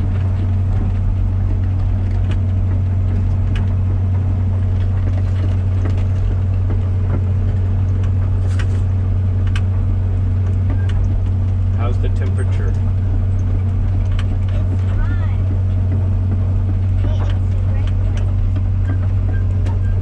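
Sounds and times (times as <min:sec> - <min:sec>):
excavator diesel engine hum: 0:00.0 - 0:20.0.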